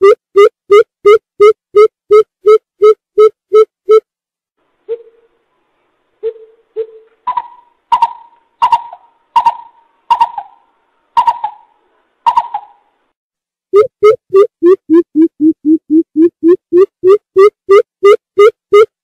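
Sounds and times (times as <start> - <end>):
bird hooting: 4.9 - 5.3, 6.2 - 12.8.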